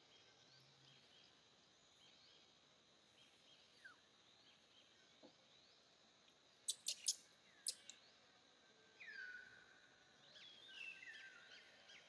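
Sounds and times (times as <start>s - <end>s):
bird whistling and chirping: 6.7s - 7.9s
sharp clicks: 6.7s - 8.0s.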